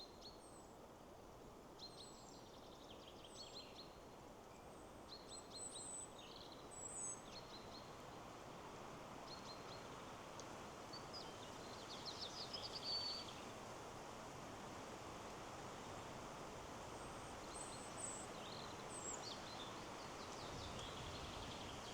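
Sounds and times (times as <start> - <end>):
wind through trees: 0.0 - 21.9
songbirds chirping: 17.0 - 21.9.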